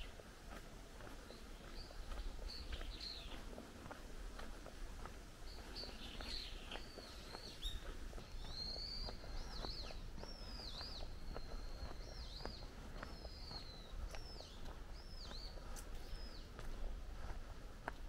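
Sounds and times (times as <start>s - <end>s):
footsteps on stone path: 0.0s - 18.0s
bird chirping: 1.3s - 3.5s, 5.5s - 16.6s.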